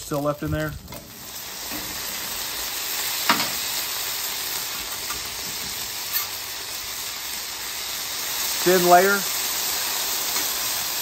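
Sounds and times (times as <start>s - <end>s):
potatoes sizzling on a griddle: 0.0s - 11.0s
metal spatula scraping: 6.1s - 6.4s.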